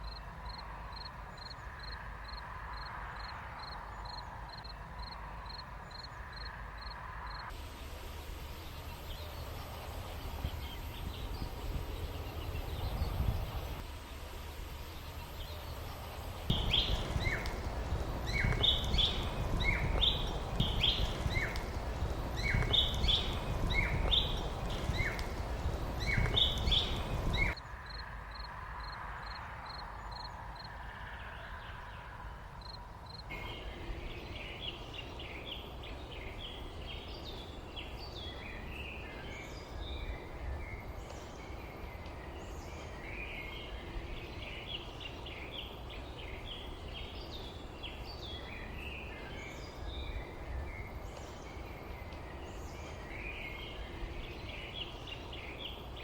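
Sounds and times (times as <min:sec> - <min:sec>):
steady low rumble: 0:07.4 - 0:27.6
overlapping bird chirps: 0:07.6 - 0:28.0, 0:32.6 - 0:56.0.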